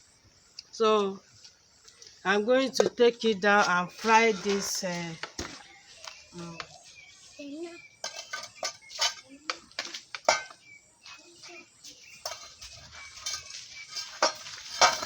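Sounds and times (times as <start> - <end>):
metal pot and utensils clanking: 3.6 - 5.7, 8.0 - 10.7, 11.5 - 15.0.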